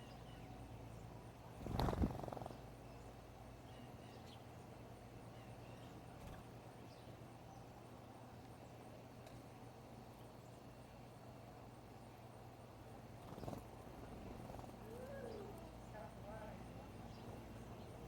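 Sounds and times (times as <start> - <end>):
faint high bird chirps: 0.0 - 1.1, 14.8 - 18.0
steady low hum: 0.0 - 18.0
bird wings fluttering: 1.6 - 2.5, 13.2 - 15.5.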